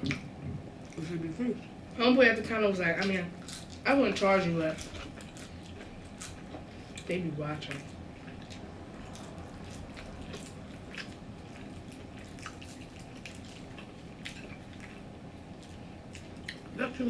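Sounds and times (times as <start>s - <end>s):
wet chewing and lip smacks: 7.7s - 16.8s.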